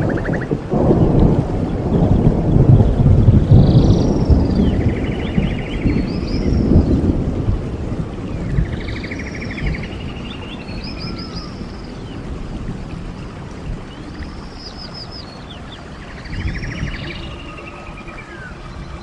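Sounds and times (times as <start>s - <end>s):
flowing stream: 0.0s - 19.0s
songbird trilling and whistling: 8.7s - 11.8s.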